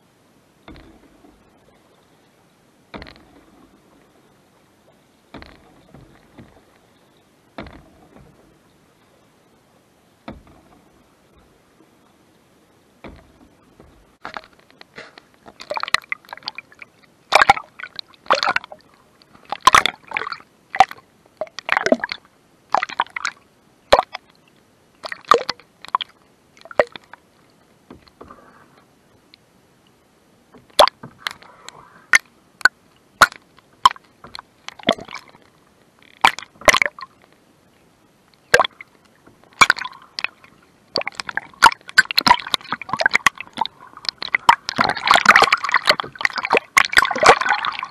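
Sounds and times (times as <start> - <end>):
wash of moving water: 0.0 - 47.9
canoe paddle splashing water: 0.6 - 24.3, 25.0 - 29.3, 30.4 - 37.3, 38.4 - 47.9
water dripping: 15.4 - 24.4, 25.0 - 27.2, 32.1 - 37.4, 38.3 - 47.9.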